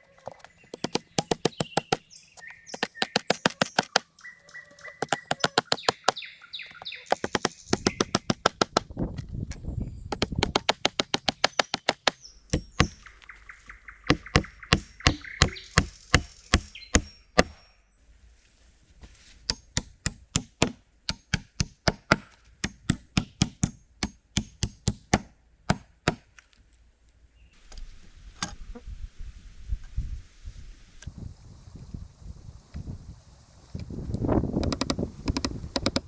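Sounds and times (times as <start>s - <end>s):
tool striking wood: 0.3s - 4.1s, 5.0s - 13.1s, 14.1s - 17.6s, 19.5s - 26.3s, 34.6s - 36.0s.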